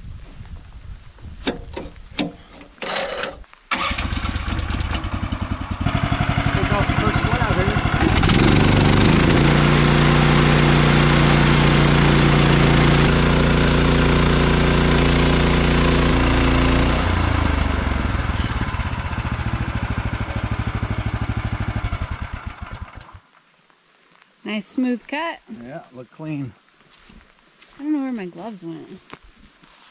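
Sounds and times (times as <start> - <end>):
sawmill engine running: 3.7 - 23.2
saw blade cutting log: 8.0 - 17.1.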